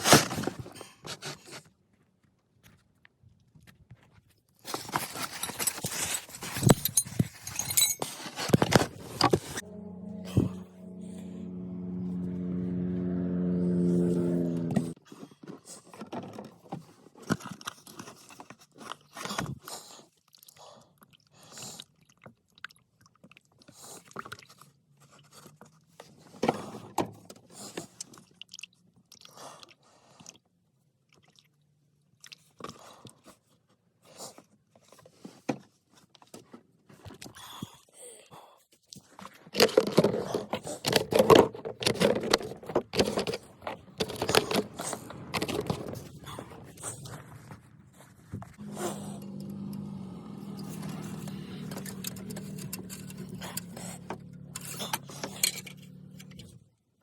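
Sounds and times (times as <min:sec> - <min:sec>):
tools clicking and scraping: 0:04.7 - 0:09.8, 0:39.6 - 0:47.1, 0:48.6 - 0:56.5.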